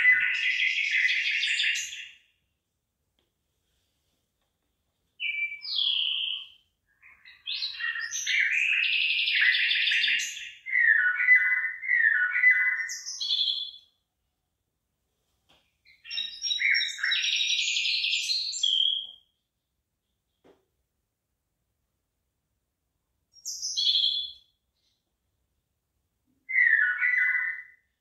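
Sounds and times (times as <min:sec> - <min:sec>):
songbird singing: 0:00.0 - 0:02.3, 0:05.2 - 0:14.0, 0:15.8 - 0:20.5, 0:23.4 - 0:25.0, 0:26.4 - 0:28.0.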